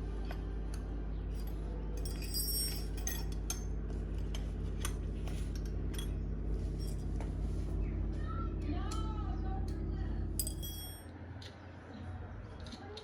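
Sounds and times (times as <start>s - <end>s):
low hum: 0.0s - 12.6s
metallic clinks: 1.4s - 3.8s, 6.8s - 7.1s, 10.4s - 11.1s.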